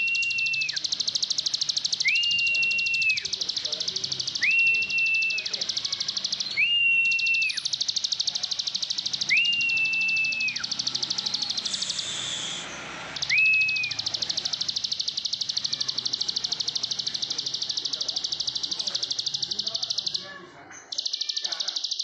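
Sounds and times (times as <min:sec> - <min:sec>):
bird singing buzzy ticking notes: 0:00.0 - 0:22.0
long whistled notes: 0:08.6 - 0:15.2.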